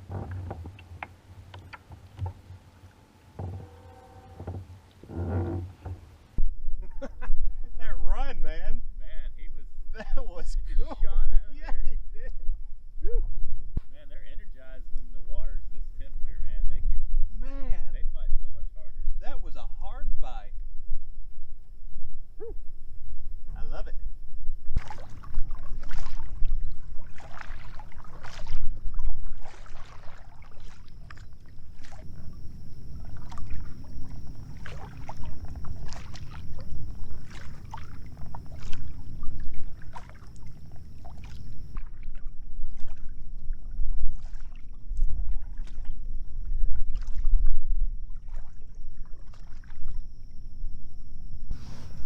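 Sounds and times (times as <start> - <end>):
water splashing around kayak: 0.0 - 7.0, 24.7 - 52.0
wind on microphone: 3.4 - 52.0.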